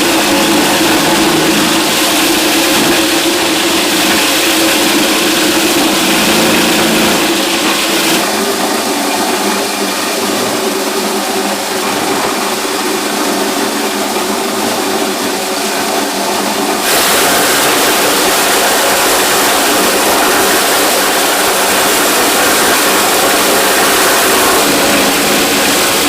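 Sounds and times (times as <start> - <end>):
motor humming: 0.0 - 8.5, 17.0 - 26.0.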